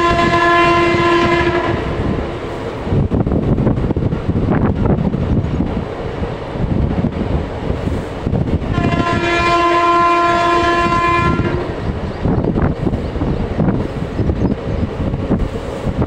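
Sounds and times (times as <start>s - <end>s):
train horn blast: 0.0s - 2.3s, 8.7s - 11.9s
train rumbling along rails: 0.0s - 16.0s
wind noise: 0.0s - 16.0s.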